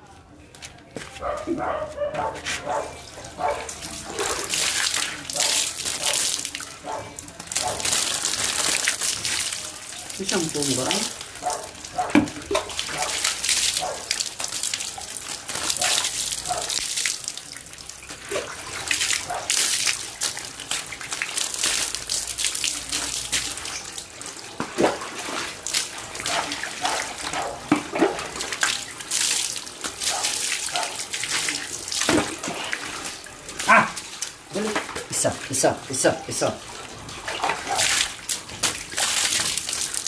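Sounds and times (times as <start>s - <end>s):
tap water running and splashing: 1.6s - 40.0s
short splashes: 24.6s - 35.8s, 36.4s - 40.0s.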